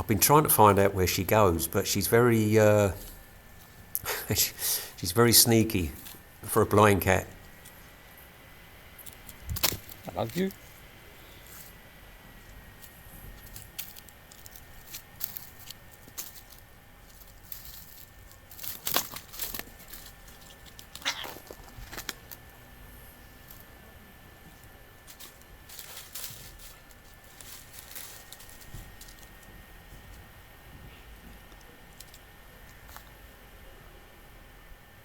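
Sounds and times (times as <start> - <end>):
light rustles crackles and clicks: 7.3 - 33.4.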